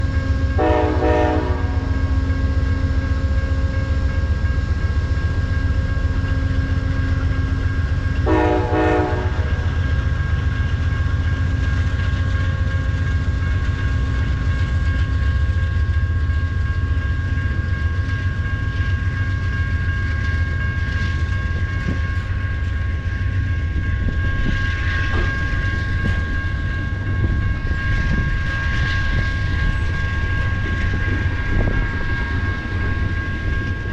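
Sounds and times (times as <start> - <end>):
diesel locomotives rumbling: 0.0 - 33.9
train horn blasts: 0.6 - 2.1, 8.2 - 9.8.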